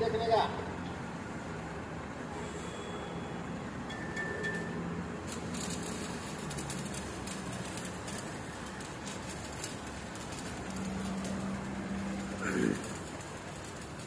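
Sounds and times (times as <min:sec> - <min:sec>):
welding arc crackling hiss: 0:04.4 - 0:14.0.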